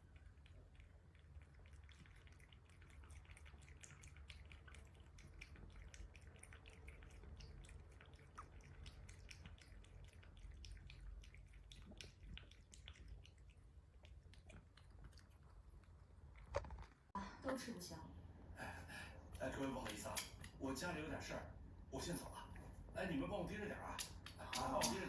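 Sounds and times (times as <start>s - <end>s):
cat eating with wet mouth clicks: 0.0s - 16.8s, 19.2s - 20.9s, 23.5s - 25.0s
low steady hum: 0.0s - 25.0s.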